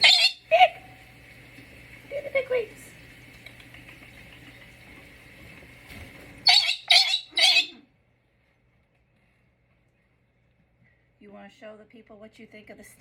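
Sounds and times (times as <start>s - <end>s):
parrot squawking: 0.0s - 0.9s, 6.4s - 7.9s.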